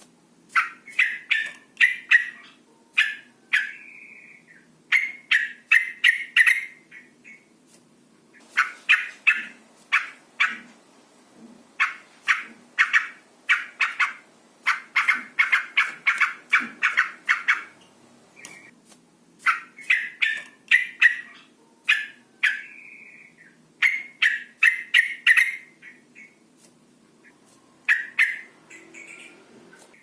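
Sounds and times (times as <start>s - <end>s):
bird chattering call: 0.6s - 7.4s, 8.6s - 10.7s, 11.8s - 17.8s.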